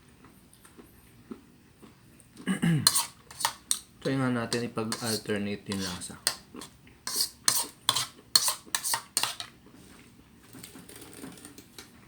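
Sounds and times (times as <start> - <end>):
cutlery clinking against a dish: 2.8 - 3.9, 4.5 - 9.5.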